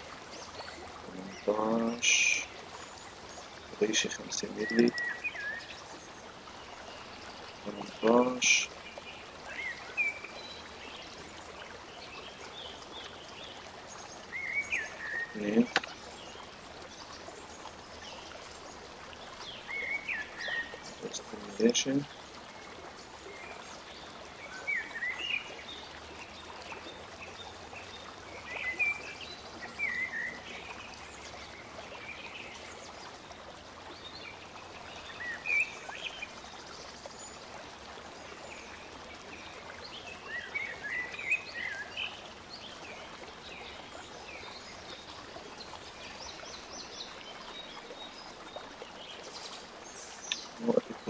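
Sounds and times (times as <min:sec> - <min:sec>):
small birds chirping: 0:00.3 - 0:51.0
background hiss: 0:01.1 - 0:03.0, 0:03.6 - 0:05.8, 0:06.9 - 0:11.0.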